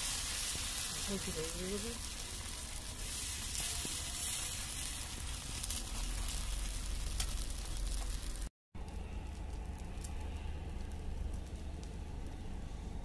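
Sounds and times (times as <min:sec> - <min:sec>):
flatbread sizzling on a griddle: 0:00.0 - 0:08.5.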